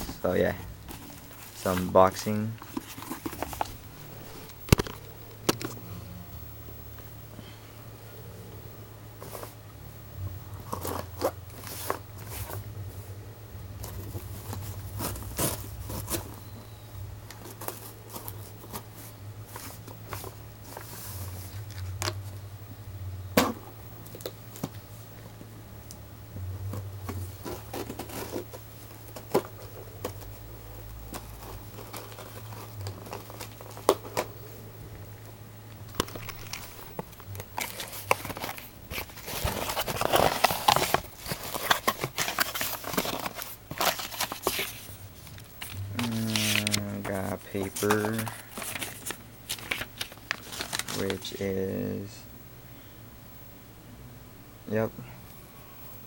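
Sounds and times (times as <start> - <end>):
cardboard tearing and crinkling: 0.0 - 5.0, 13.8 - 16.3, 27.4 - 30.4, 31.1 - 34.3, 35.9 - 51.5.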